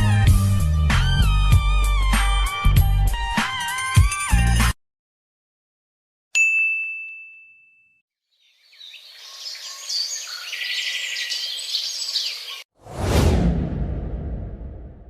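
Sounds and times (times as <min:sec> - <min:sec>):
high bell ding: 0:06.4 - 0:08.0
birds chirping and twittering: 0:08.3 - 0:12.7.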